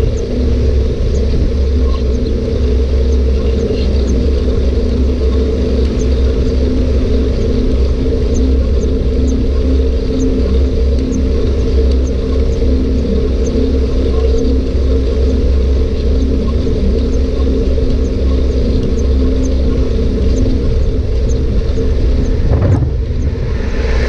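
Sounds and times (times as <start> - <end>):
constant low drone: 0.0 - 24.0
bike riding rumble: 17.7 - 24.0
wind on microphone: 20.0 - 24.0.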